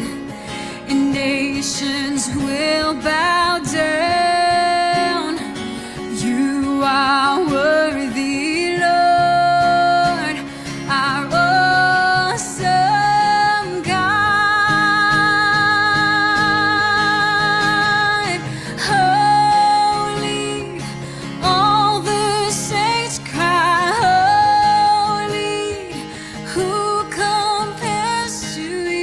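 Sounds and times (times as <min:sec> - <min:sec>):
acoustic guitar: 0:00.0 - 0:29.0
person singing: 0:00.8 - 0:29.0.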